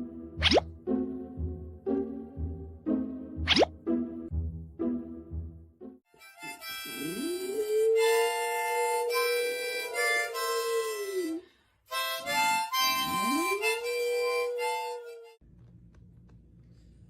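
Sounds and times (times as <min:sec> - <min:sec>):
harmonica playing chords: 0:04.3 - 0:15.4
dog howling: 0:06.9 - 0:11.4, 0:13.1 - 0:15.3.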